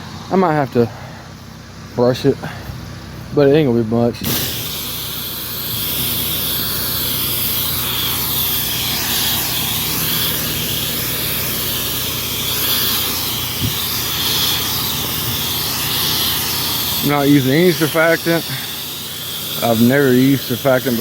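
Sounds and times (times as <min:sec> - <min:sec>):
pressure washer engine humming: 0:00.0 - 0:21.0
spray wand hissing: 0:04.2 - 0:21.0.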